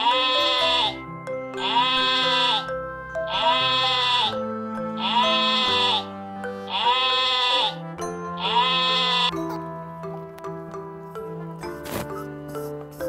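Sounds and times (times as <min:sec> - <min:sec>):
sheep bleating: 0:00.0 - 0:01.0, 0:01.6 - 0:02.7, 0:03.3 - 0:04.4, 0:05.0 - 0:06.1, 0:06.7 - 0:07.8, 0:08.4 - 0:09.4
background music with held chords: 0:00.0 - 0:13.0.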